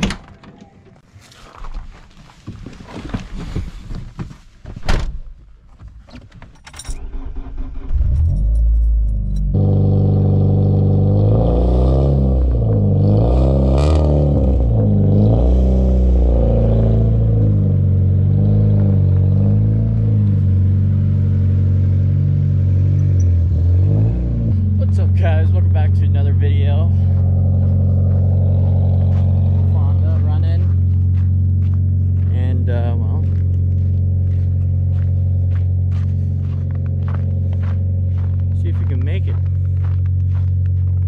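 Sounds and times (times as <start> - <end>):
thump: 4.7 - 5.2
loud car engine revving and idling: 7.6 - 40.9.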